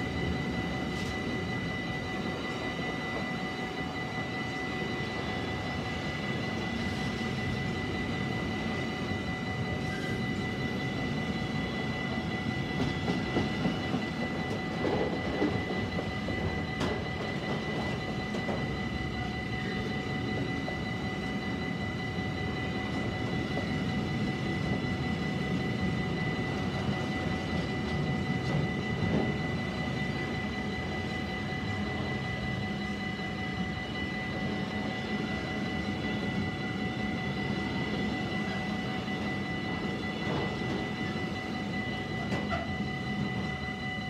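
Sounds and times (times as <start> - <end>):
level crossing warning bells: 0.0 - 44.0
freight train wheels clattering: 12.5 - 19.2.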